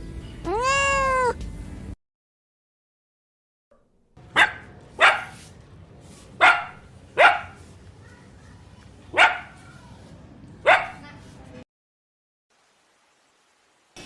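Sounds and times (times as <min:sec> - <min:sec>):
dog barking: 0:04.3 - 0:05.4, 0:06.4 - 0:07.6, 0:09.1 - 0:09.8, 0:10.6 - 0:11.0.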